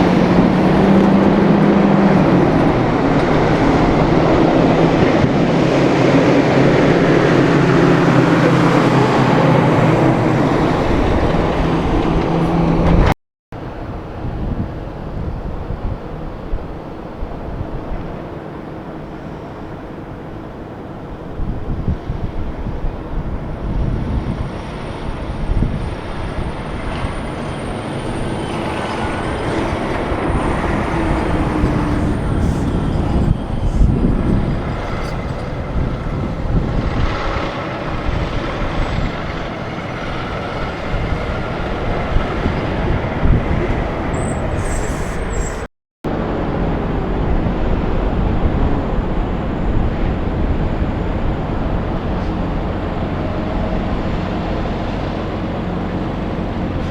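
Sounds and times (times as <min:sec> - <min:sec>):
heavy trucks passing: 0:00.0 - 0:56.9.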